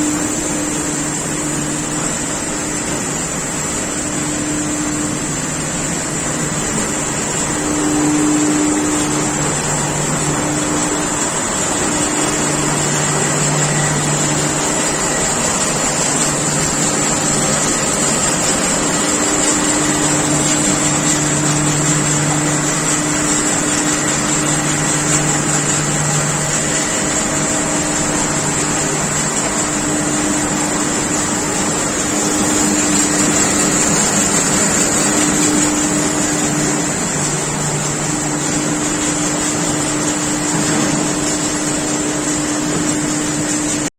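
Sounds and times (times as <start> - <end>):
industrial machine running: 0.0 - 43.9
low machine hum: 0.0 - 43.9.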